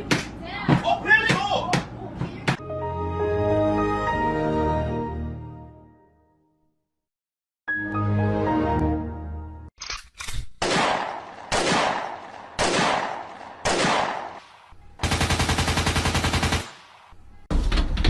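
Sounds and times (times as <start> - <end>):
single gunshots with echo: 10.6 - 14.8
automatic gunfire burst: 15.0 - 17.0.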